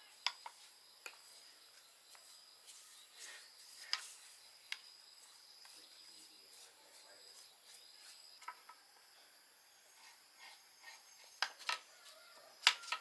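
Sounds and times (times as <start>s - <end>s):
high-pitched insect chirring: 0.1s - 8.5s.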